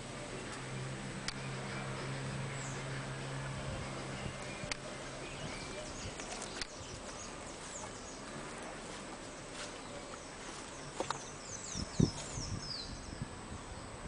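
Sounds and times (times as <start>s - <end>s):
birds chirping: 0.0s - 14.0s
steady background hiss: 0.0s - 14.0s
faint clicks: 6.2s - 6.8s.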